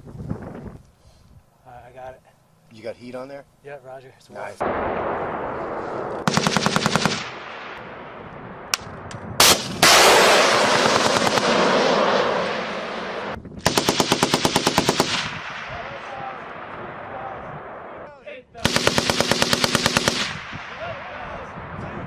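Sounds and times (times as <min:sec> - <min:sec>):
loud blast: 0:04.6 - 0:14.0
machine gun bursts: 0:06.2 - 0:07.2, 0:09.5 - 0:11.6, 0:13.7 - 0:15.3, 0:18.6 - 0:20.3.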